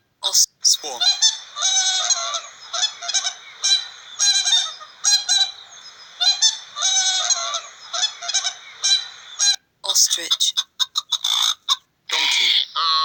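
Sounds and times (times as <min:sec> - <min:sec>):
swans honking: 0:00.8 - 0:09.6, 0:12.1 - 0:13.0.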